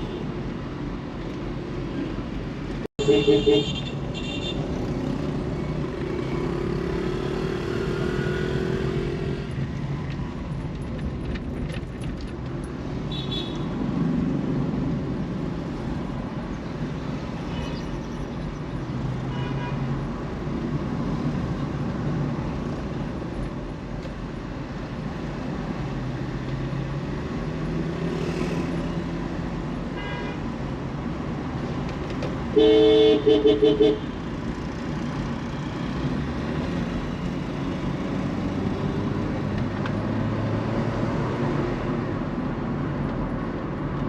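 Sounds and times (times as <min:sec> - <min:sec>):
vehicles passing: 0:00.0 - 0:44.0
car engine and tyre rumble: 0:03.9 - 0:44.0
car horn toots: 0:32.5 - 0:34.0.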